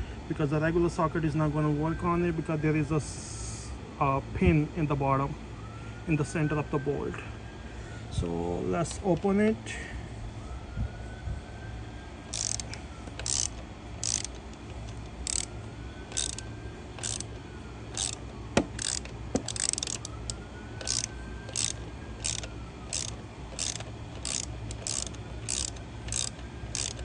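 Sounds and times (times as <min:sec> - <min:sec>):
hand ratchet clicking: 0:12.3 - 0:15.5, 0:16.1 - 0:27.0.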